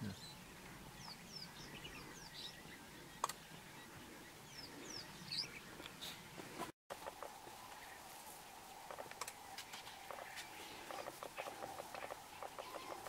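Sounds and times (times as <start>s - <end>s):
high bird chirps: 9.6s - 13.0s.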